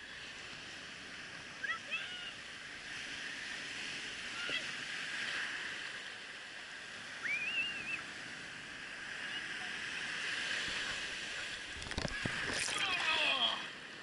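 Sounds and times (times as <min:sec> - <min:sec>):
ocean surf washing: 0:00.0 - 0:14.0.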